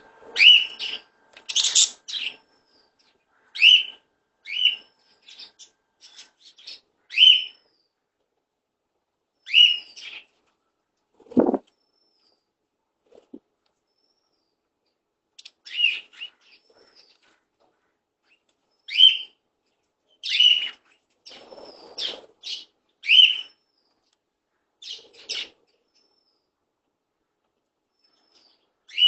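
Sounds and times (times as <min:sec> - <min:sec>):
parrot chirping: 0:00.4 - 0:02.4.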